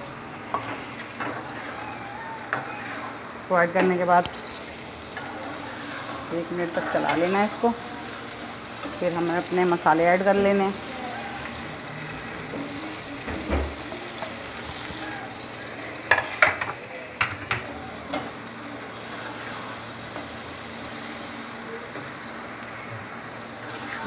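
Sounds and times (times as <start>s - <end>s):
onions sizzling in hot oil: 0.0s - 24.0s
metal spatula scraping: 0.5s - 11.5s.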